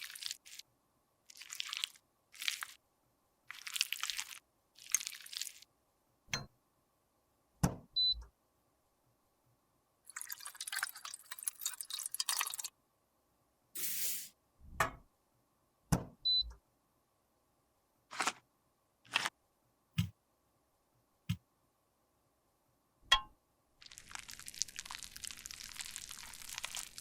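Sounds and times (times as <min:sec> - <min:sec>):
crackly scraping: 0:18.1 - 0:18.4.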